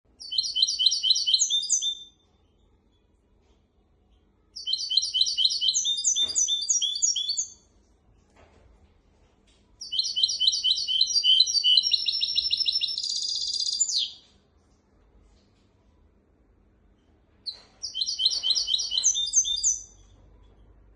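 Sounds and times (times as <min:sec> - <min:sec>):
finch singing: 0:00.2 - 0:02.2, 0:04.6 - 0:07.6, 0:09.8 - 0:14.2, 0:17.5 - 0:20.1.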